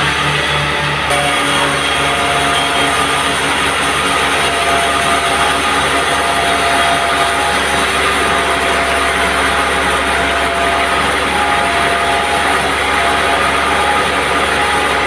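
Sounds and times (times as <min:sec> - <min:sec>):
band sawmill drone: 0:00.0 - 0:15.0.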